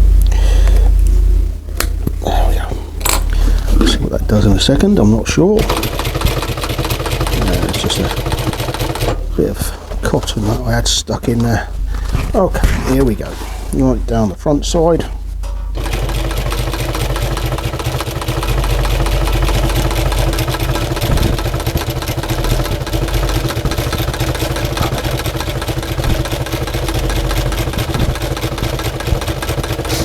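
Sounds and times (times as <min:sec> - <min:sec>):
sewing machine stitching: 0:05.6 - 0:09.3, 0:15.8 - 0:30.0.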